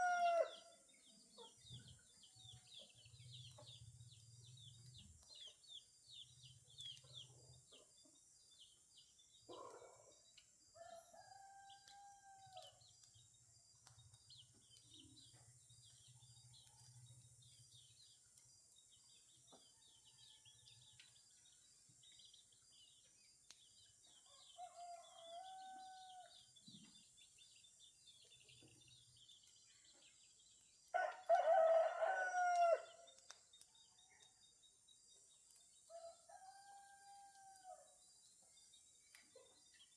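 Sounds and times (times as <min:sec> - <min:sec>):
rooster crowing: 0:00.0 - 0:00.6, 0:10.8 - 0:12.6, 0:31.0 - 0:33.0
small birds chirping: 0:00.0 - 0:10.5, 0:11.2 - 0:36.6, 0:37.9 - 0:39.9.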